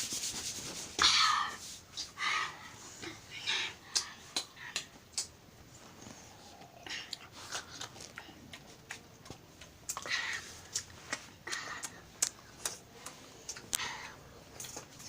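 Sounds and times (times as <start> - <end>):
chewing and mouth smacking: 6.6 - 13.8.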